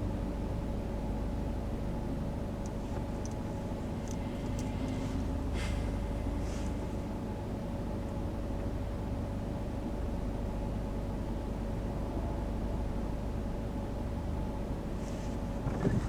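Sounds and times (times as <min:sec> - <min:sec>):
faint steady hum: 0:00.0 - 0:16.0
car engine and tyre noise: 0:02.4 - 0:08.1, 0:14.9 - 0:16.0
light high ticks: 0:02.6 - 0:05.3.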